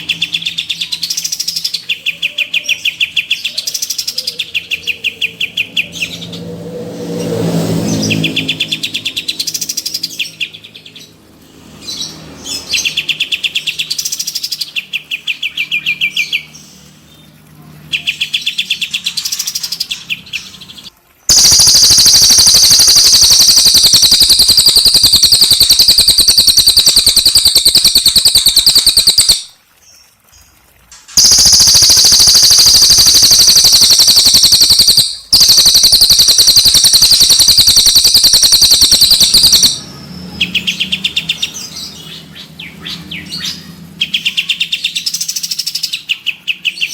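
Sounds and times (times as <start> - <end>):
cage birds singing trills: 0.0 - 30.5, 31.2 - 46.9
loud high bird trill: 21.3 - 29.5, 31.2 - 39.8.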